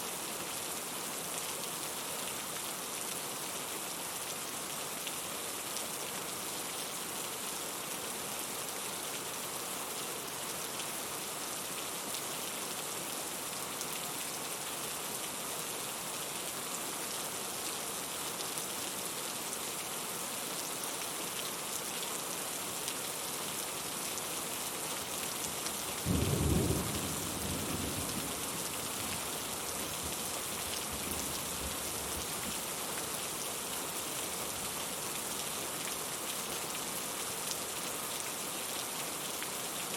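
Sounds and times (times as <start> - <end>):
steady rain: 0.0 - 39.9
low rumble of thunder: 26.1 - 28.7.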